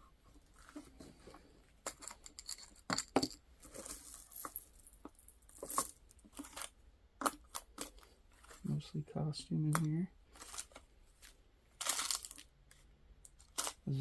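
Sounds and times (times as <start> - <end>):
jewelry clinking and rattling: 1.8 - 8.6, 10.3 - 12.5, 13.2 - 13.9.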